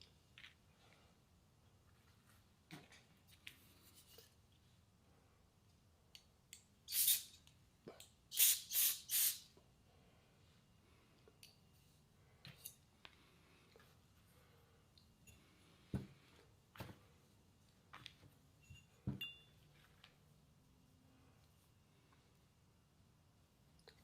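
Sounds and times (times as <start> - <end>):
spray nozzle hissing: 6.9 - 7.3, 8.3 - 9.4.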